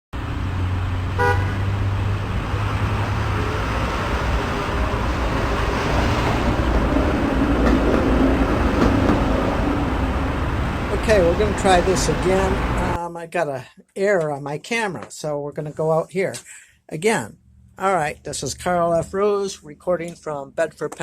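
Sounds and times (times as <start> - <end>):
motor vehicle rumble: 0.1 - 13.0
high horn toot: 1.1 - 1.8.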